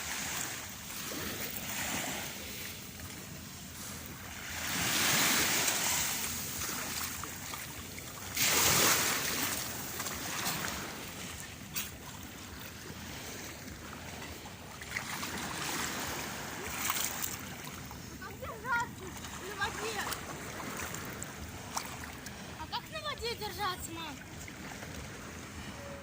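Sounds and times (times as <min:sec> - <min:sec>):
sea waves washing ashore: 0:00.0 - 0:26.0.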